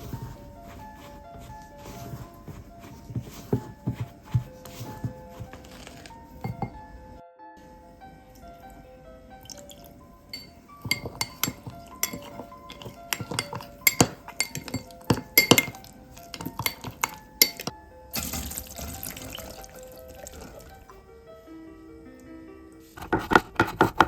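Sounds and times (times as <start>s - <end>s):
soft background music: 0.0s - 24.0s
utensil clinking against glassware: 5.7s - 6.8s, 9.5s - 20.7s.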